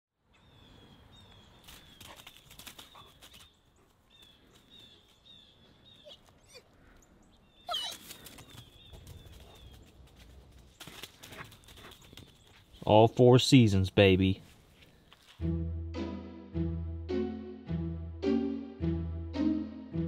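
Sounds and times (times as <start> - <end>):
small birds chirping: 0.2 - 13.7.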